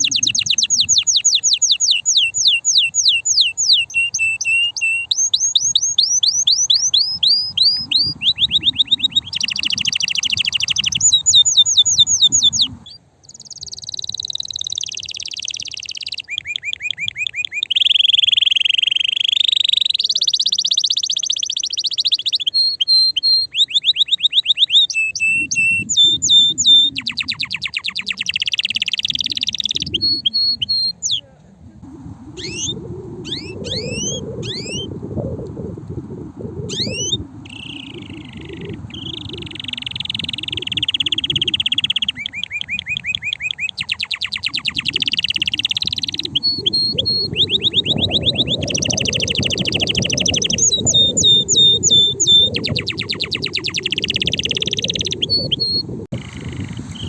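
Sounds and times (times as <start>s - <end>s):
canary singing trills: 0.0s - 31.3s, 32.3s - 35.3s, 36.5s - 57.0s
low rumbling noise: 31.3s - 42.1s, 45.7s - 57.0s.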